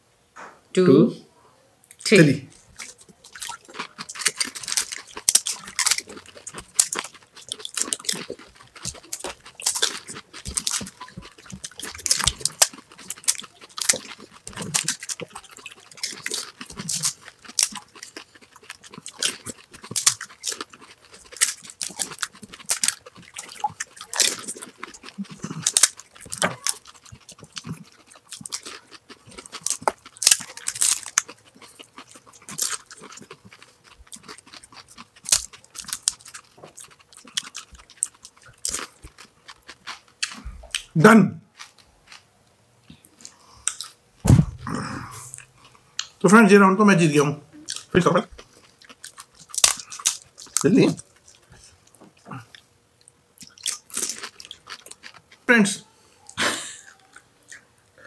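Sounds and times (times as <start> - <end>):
crunching and chewing crisp shells: 1.8 - 46.3, 47.6 - 58.0.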